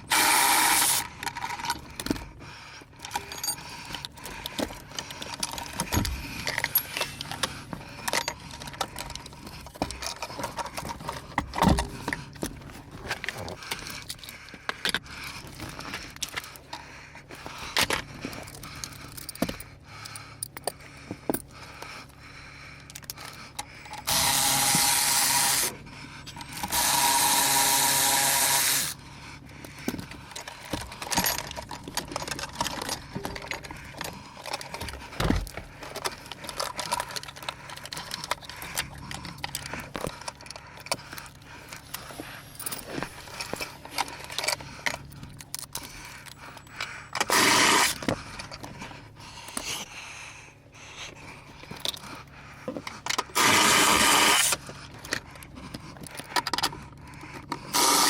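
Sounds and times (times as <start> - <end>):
handheld power tool bursts: 0.0 - 1.2, 24.0 - 25.7, 26.5 - 29.0, 47.2 - 48.1, 53.3 - 54.6, 57.7 - 58.0
tools clicking and knocking: 0.1 - 16.9, 17.6 - 21.9, 29.6 - 49.9, 51.6 - 58.0.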